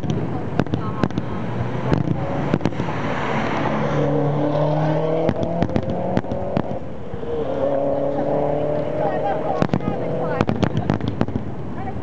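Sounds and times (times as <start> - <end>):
firework bangs: 0.0 - 3.7, 5.2 - 6.9, 9.6 - 12.0.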